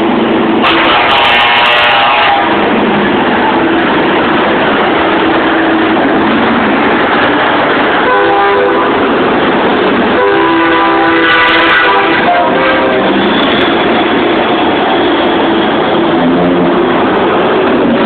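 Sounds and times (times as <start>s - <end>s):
engine and traffic noise: 0.0s - 18.0s
truck air horn blasts: 0.6s - 2.8s, 8.0s - 9.2s, 10.1s - 15.6s.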